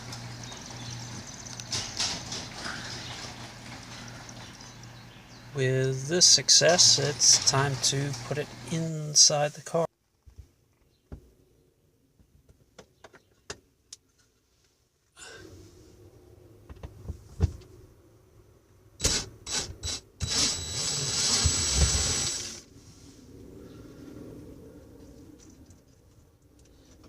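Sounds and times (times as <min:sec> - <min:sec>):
mechanical whirring: 0:19.0 - 0:22.6.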